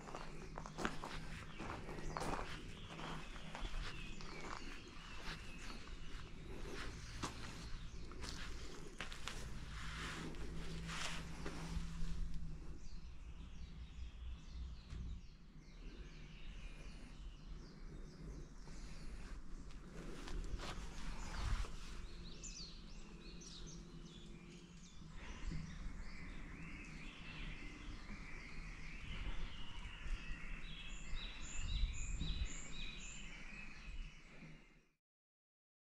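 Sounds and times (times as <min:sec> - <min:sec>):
low outdoor rumble: 0:00.0 - 0:26.0
small birds chirping: 0:00.0 - 0:34.9.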